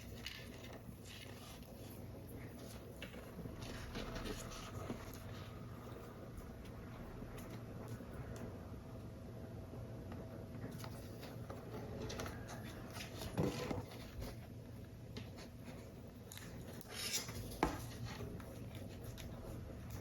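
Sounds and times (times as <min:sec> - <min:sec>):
paper rustling: 0:00.0 - 0:06.0, 0:10.7 - 0:20.0.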